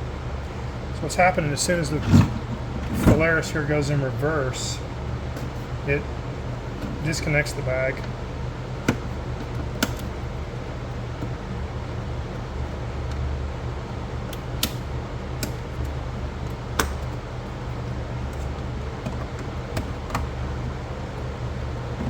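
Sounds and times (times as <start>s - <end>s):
pool cleaner humming: 0.0s - 9.6s.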